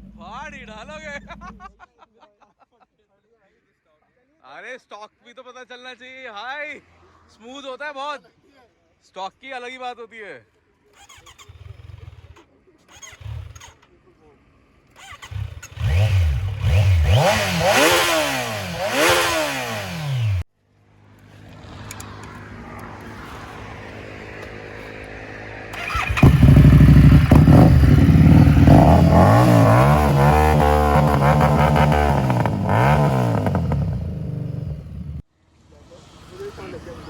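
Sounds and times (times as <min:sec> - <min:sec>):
motorcycle engine revving: 0:11.0 - 0:13.9, 0:14.9 - 0:20.5, 0:25.7 - 0:35.2
motorcycle engine idling: 0:14.7 - 0:20.4, 0:25.8 - 0:35.2.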